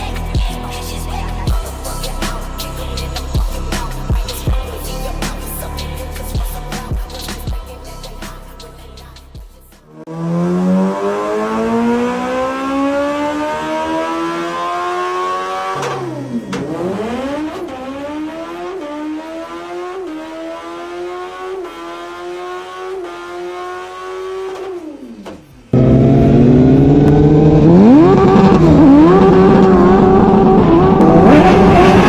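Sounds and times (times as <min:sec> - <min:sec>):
motorcycle engine revving: 0:09.9 - 0:32.0.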